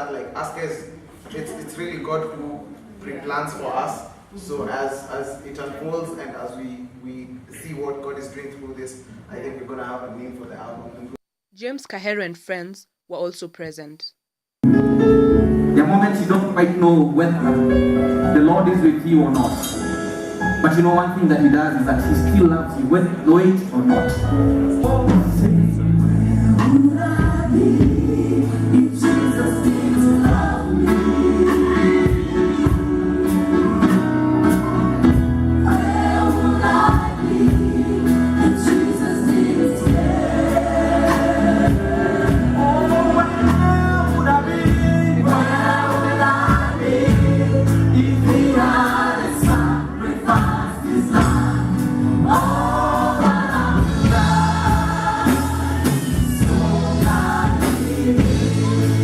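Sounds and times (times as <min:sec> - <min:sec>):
band with bass line: 0:21.4 - 0:59.0
gospel choir singing: 0:23.9 - 0:59.0.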